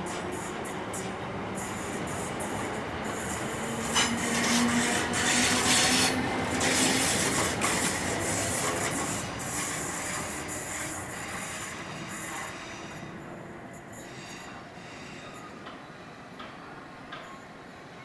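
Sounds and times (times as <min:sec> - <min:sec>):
train rumble and hiss: 0:00.0 - 0:18.0
wheels scraping on rail: 0:00.1 - 0:13.2.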